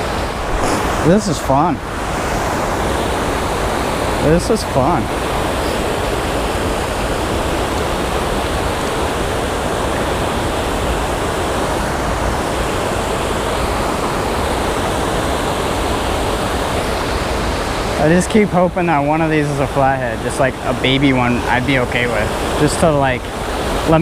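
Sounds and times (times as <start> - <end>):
creek water rushing over rocks: 0.0 - 24.0.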